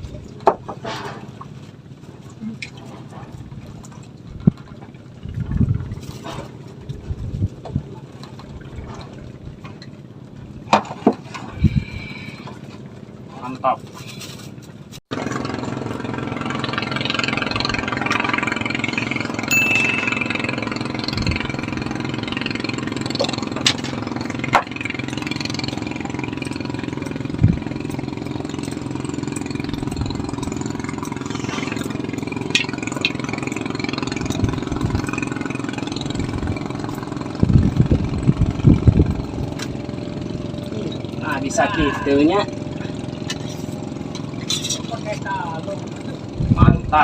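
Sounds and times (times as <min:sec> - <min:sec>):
small engine running: 0:15.1 - 0:46.7.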